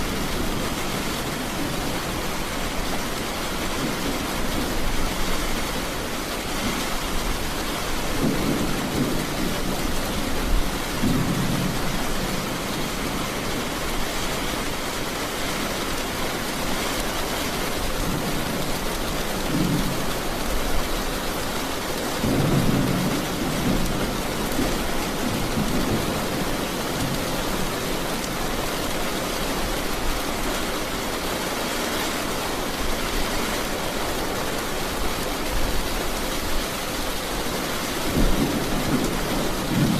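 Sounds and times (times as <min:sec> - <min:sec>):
heavy rain: 0:00.0 - 0:39.9
low rumbles of thunder: 0:08.1 - 0:13.2, 0:22.2 - 0:27.8, 0:38.0 - 0:39.9.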